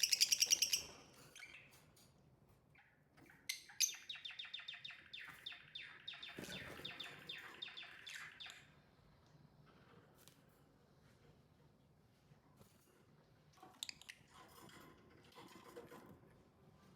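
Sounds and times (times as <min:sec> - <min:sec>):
lovebirds chirping: 0:00.0 - 0:01.8, 0:02.8 - 0:08.7.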